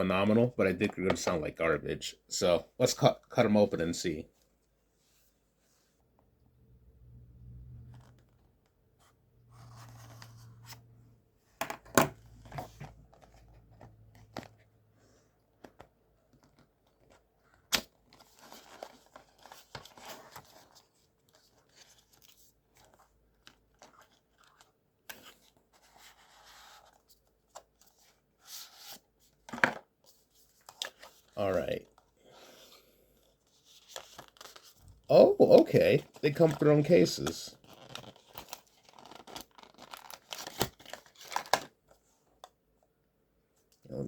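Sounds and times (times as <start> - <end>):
packaging tearing and rustling: 37.5 - 41.7.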